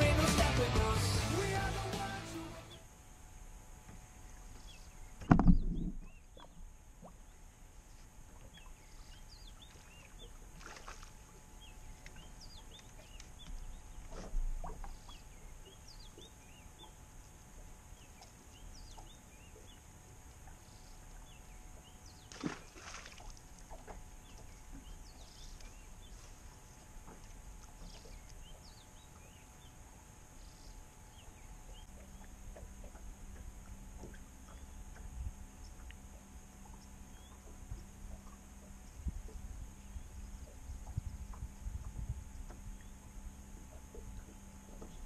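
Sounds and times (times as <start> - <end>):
low thump on boat deck: 5.2 - 6.2
soft knocks on boat deck: 43.6 - 45.0.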